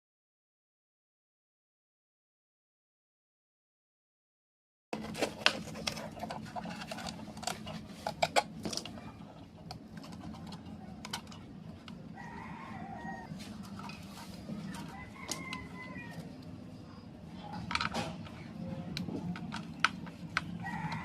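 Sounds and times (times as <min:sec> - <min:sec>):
steady low hum: 0:05.0 - 0:21.0.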